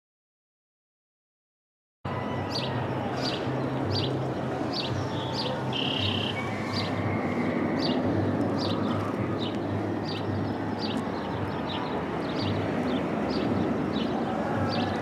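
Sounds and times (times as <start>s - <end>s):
small bird chirping: 5.1s - 7.0s.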